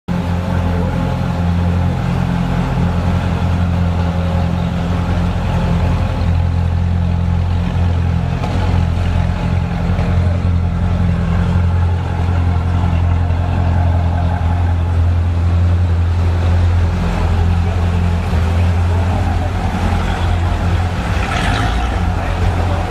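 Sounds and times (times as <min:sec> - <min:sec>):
sports car engines rumbling: 0:00.1 - 0:22.9.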